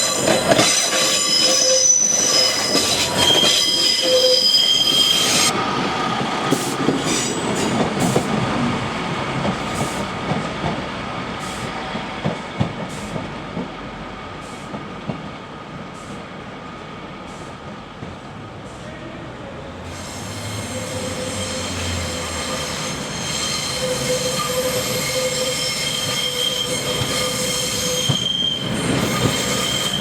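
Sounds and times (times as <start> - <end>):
train wheels squealing: 0.0 - 5.5, 19.9 - 30.0
train rumbling: 0.0 - 30.0.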